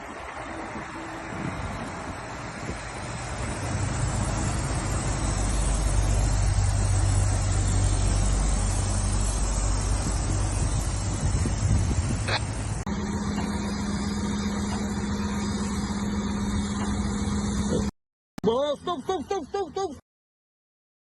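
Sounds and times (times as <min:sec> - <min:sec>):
road and wind noise: 0:00.0 - 0:17.9
vehicle engine running: 0:00.0 - 0:17.9.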